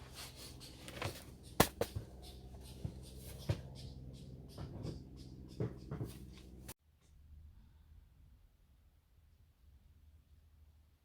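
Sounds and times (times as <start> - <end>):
rustling of handling: 0.0 - 2.1.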